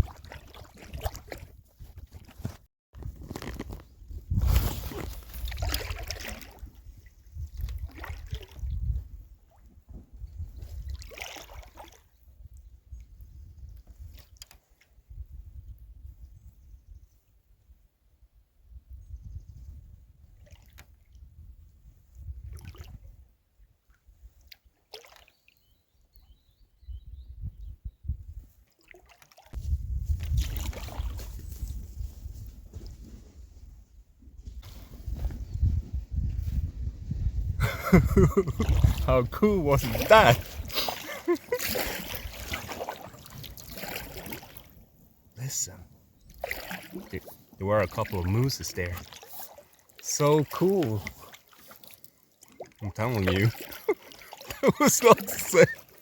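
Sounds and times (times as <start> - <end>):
paddle strokes splashing in water: 0.0 - 2.6, 4.4 - 7.0, 7.6 - 8.7, 10.7 - 12.1, 24.4 - 25.6, 28.6 - 31.8, 38.6 - 45.0, 46.3 - 56.0.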